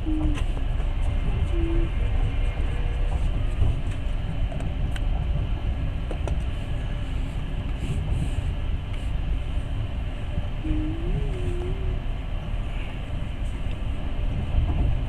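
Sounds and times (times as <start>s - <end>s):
train carriage rumbling: 0.0s - 15.0s.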